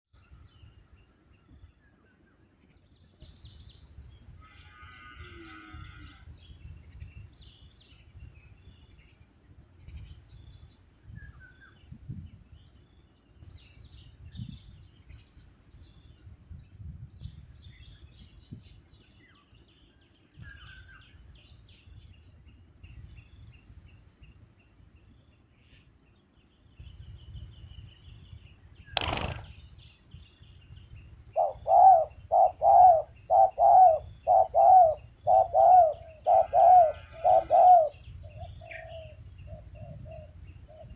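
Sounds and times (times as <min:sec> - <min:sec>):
faint small-bird chirps: 0:00.2 - 0:37.2
dove cooing loudly: 0:31.4 - 0:40.9.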